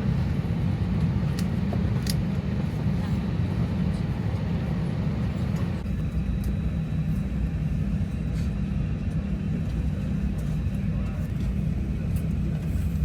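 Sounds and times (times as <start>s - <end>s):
airliner cabin low rumble: 0.0s - 13.0s.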